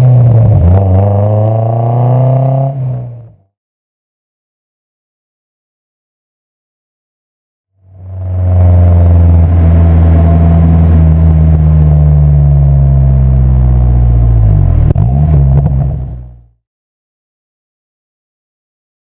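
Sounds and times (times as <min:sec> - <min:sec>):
car exhaust drone: 0:00.0 - 0:03.4, 0:07.8 - 0:16.6.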